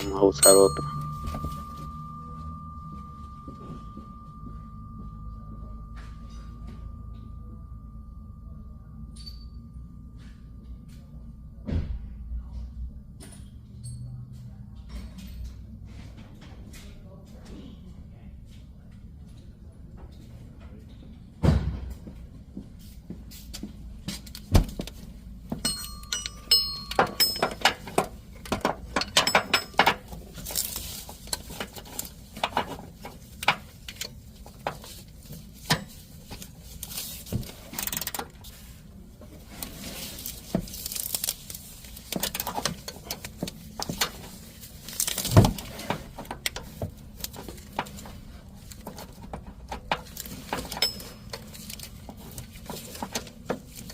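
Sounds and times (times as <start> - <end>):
metal tools clinking: 0.0 - 4.8, 9.1 - 9.7, 25.5 - 38.6, 49.8 - 53.9
metallic ring: 0.0 - 14.3, 25.6 - 31.5, 50.7 - 51.8.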